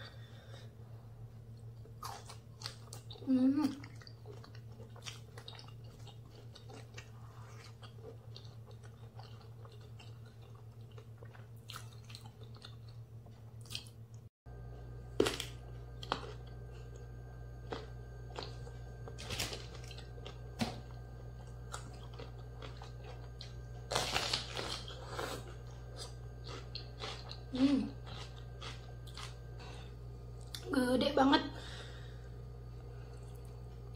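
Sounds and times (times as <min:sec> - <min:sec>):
crunchy vegetables being chewed: 0:01.5 - 0:30.7
bell pepper crunching: 0:01.7 - 0:13.0, 0:15.1 - 0:17.0, 0:17.6 - 0:30.7.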